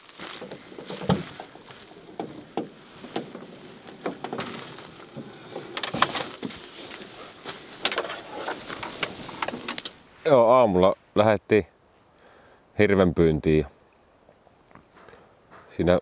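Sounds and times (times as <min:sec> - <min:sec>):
knocks and clicks: 0:00.4 - 0:06.5.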